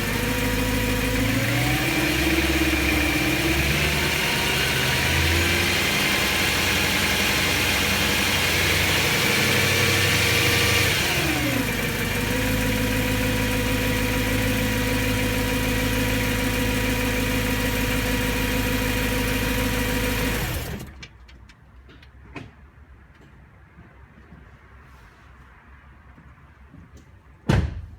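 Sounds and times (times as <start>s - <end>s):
car engine revving and idling: 0.0s - 21.0s.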